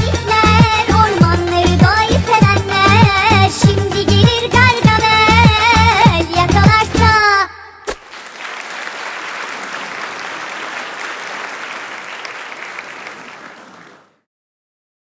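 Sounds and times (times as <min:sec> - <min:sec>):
audience applauding: 0:07.9 - 0:14.2.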